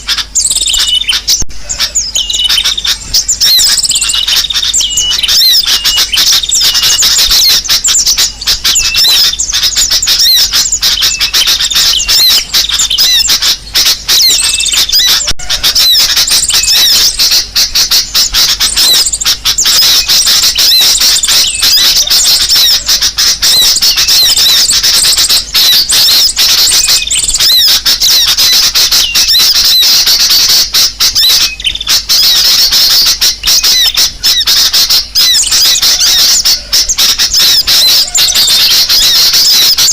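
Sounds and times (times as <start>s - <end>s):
high-pitched bird chirping: 0.0s - 39.9s.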